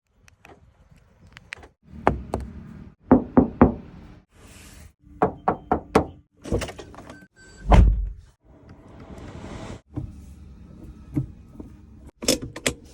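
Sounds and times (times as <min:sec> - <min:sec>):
deep thud: 0:07.7 - 0:08.2.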